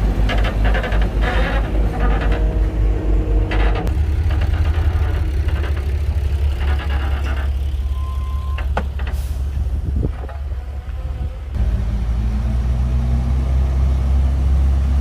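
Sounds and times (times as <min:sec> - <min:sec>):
bulldozer engine rumbling: 0:00.0 - 0:15.0
metallic clanks: 0:03.4 - 0:10.5.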